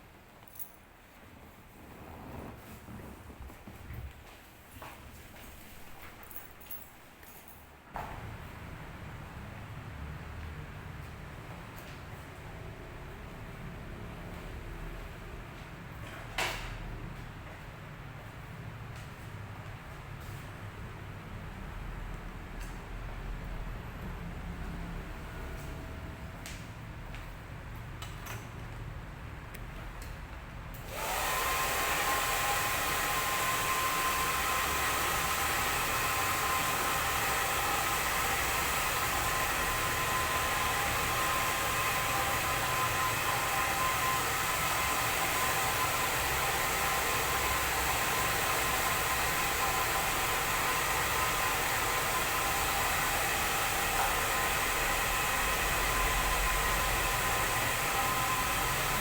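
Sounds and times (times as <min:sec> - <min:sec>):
hair dryer running: 0:30.8 - 0:59.0
hair dryer switch: 0:30.8 - 0:59.0.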